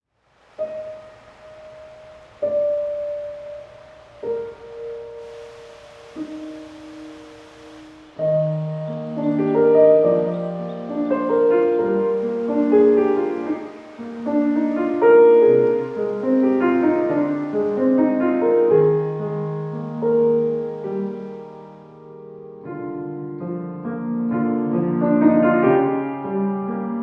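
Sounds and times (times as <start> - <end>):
gentle piano music: 0.4 - 27.0.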